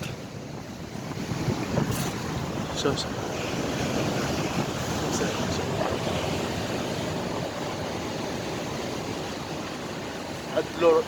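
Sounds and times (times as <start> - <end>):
wind noise on microphone: 0.0 - 10.4
sea surf washing ashore: 0.0 - 11.0.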